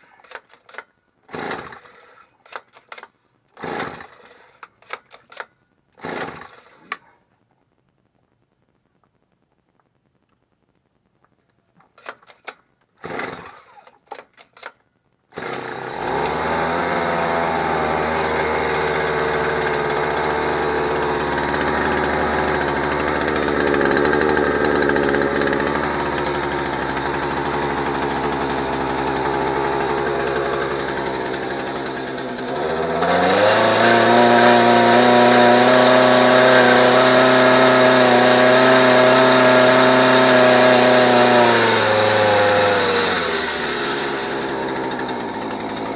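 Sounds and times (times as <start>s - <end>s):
outboard motor starting and running: 15.4s - 45.9s.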